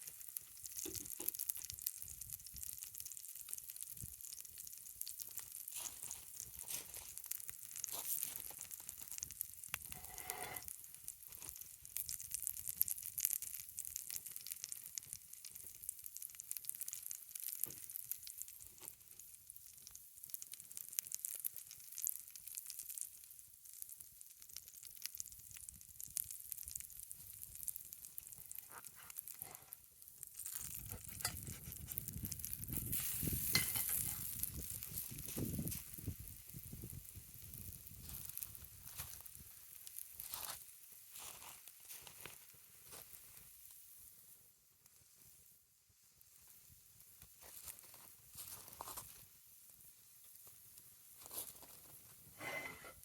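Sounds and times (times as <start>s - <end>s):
small pops: 0.0s - 40.4s
pancakes sizzling in a skillet: 0.0s - 53.0s.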